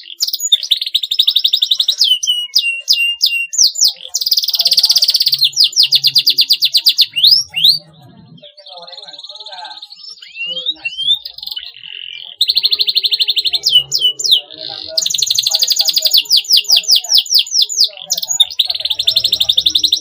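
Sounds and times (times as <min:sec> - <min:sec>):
canary singing trills: 0:00.0 - 0:20.0.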